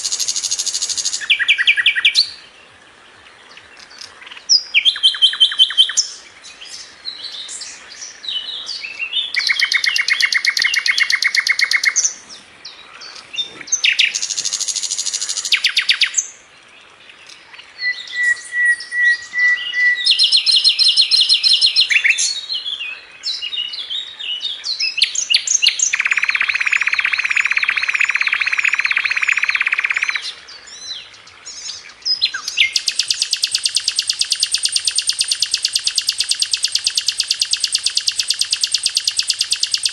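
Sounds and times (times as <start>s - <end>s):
flycatcher singing: 3.9s - 16.3s, 17.8s - 22.6s, 24.7s - 30.8s, 31.5s - 39.9s.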